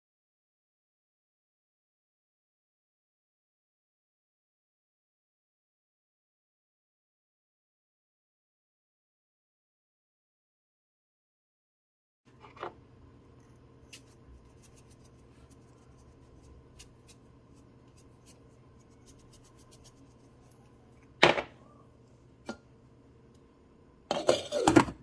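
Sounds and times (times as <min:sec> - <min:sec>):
faint steady hum: 0:12.3 - 0:25.0
cookware and utensils clattering: 0:24.1 - 0:25.0.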